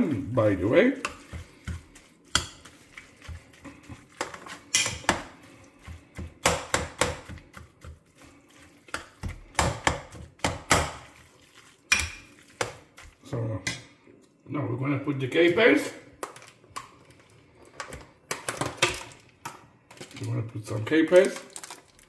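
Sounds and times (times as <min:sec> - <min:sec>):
metal spoon stirring in pot: 0:00.0 - 0:13.9.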